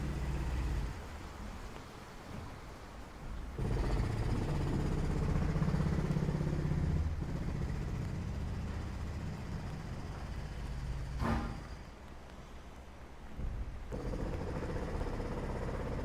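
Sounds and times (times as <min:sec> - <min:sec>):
vehicle engine running: 0:00.0 - 0:01.1, 0:03.6 - 0:11.8, 0:13.9 - 0:16.0.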